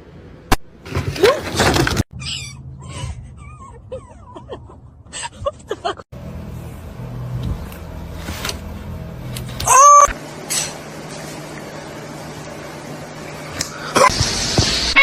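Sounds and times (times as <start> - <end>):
low steady hum: 6.2 - 14.1.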